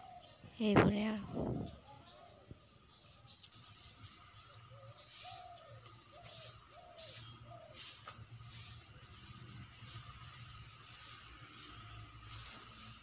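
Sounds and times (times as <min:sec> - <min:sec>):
faint bird calls: 0:04.4 - 0:08.2.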